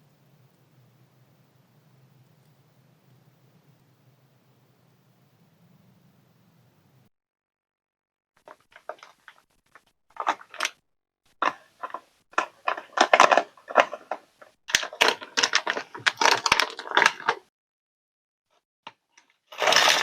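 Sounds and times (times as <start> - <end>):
packaging crackling and rustling: 8.5 - 10.8, 11.4 - 17.4, 19.5 - 20.0.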